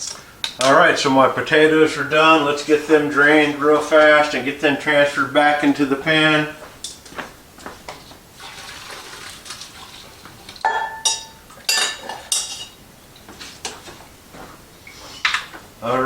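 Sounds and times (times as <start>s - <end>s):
water pouring: 8.3s - 10.7s
metal pot clanking: 8.4s - 13.9s.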